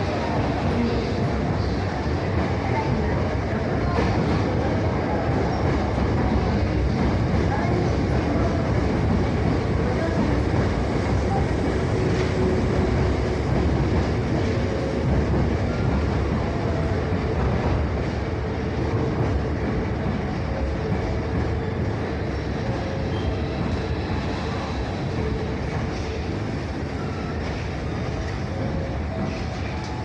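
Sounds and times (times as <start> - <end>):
electric train rumbling: 0.0 - 30.0.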